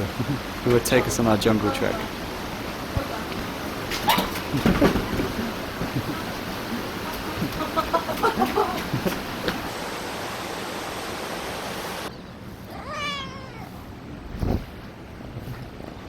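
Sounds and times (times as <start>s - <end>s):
drawn-out animal call: 0.0s - 9.7s
steady noise: 0.0s - 12.1s
scattered knocks: 2.0s - 9.7s
dull thump: 3.9s - 6.1s.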